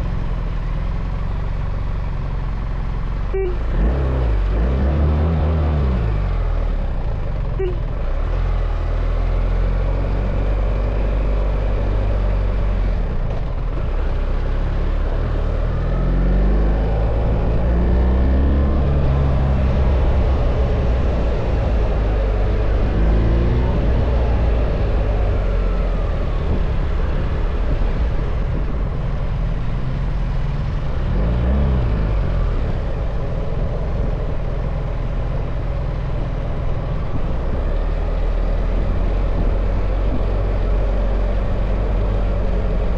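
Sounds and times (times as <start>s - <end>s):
wind and road noise: 0.0s - 42.9s.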